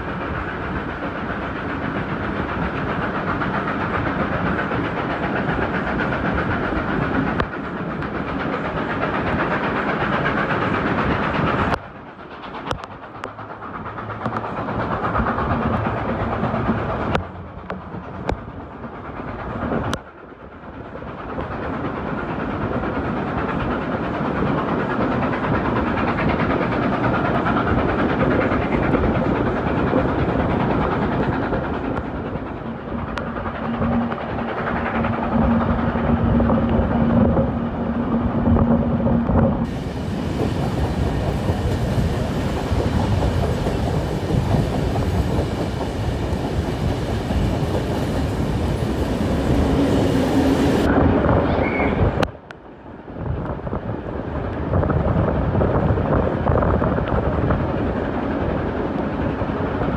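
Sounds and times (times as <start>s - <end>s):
train rumble: 0.0s - 59.9s
wheels clacking over rails: 21.4s - 51.1s.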